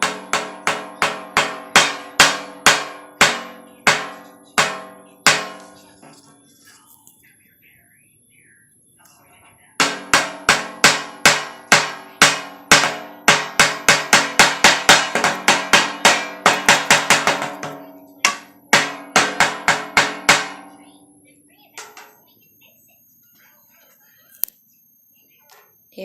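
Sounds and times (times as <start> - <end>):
stick drumming on metal tin: 0.0 - 6.2, 9.8 - 20.8, 21.8 - 22.2.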